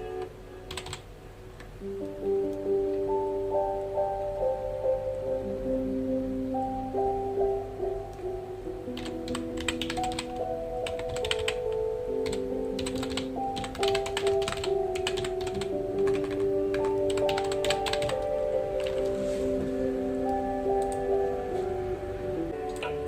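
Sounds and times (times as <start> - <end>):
soft background music: 0.0 - 23.0
computer keyboard typing: 0.7 - 1.0, 9.0 - 19.1, 20.8 - 21.1.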